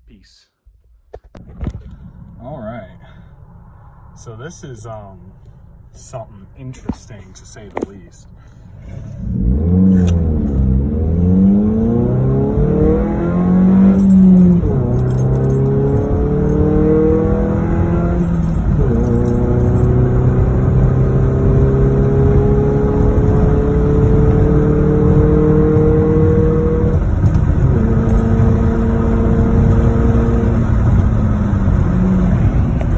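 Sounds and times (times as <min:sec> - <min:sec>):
car engine accelerating: 0:01.4 - 0:32.9.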